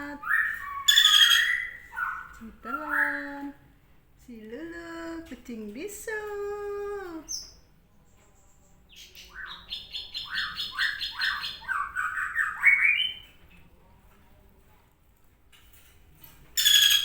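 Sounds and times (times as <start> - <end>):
woman's voice: 0.0 - 0.4, 2.3 - 7.4
bird chirping: 0.2 - 3.3, 8.3 - 13.4, 16.6 - 17.0.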